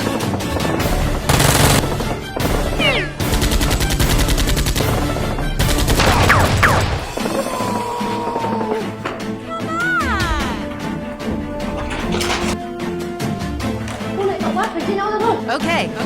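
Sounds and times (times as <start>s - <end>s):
background music: 0.0s - 16.0s
automatic gunfire bursts: 0.5s - 7.3s.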